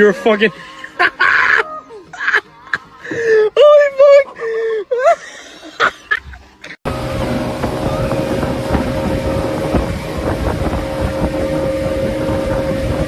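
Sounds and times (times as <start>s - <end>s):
motorboat engine whining: 6.9s - 13.0s
rushing water: 6.9s - 13.0s
rushing wind: 6.9s - 13.0s.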